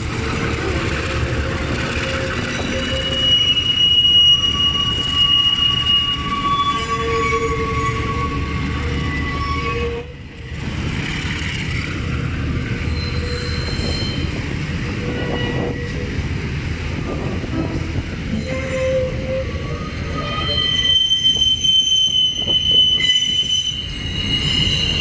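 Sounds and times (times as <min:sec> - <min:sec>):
train wheels on rails: 0:00.0 - 0:25.0
high-pitched wheel squeal: 0:01.9 - 0:10.1, 0:12.8 - 0:14.4, 0:17.7 - 0:25.0.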